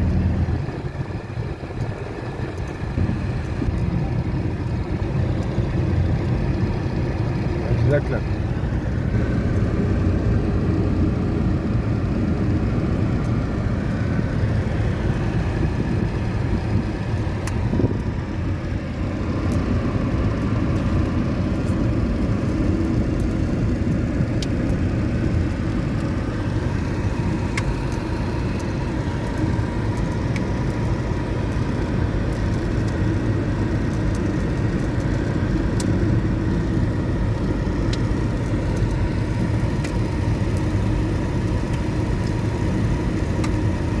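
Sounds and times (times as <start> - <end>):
car driving rumble: 0.0 - 44.0.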